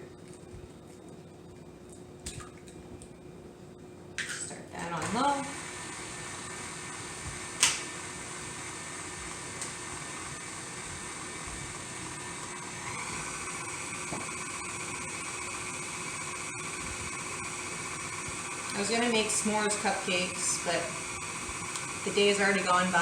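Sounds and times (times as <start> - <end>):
stand mixer running: 5.0 - 23.0.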